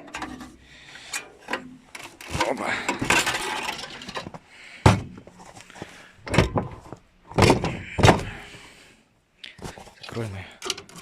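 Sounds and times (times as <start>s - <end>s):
door knocks and thuds: 7.3s - 8.3s
door banging: 7.3s - 8.4s.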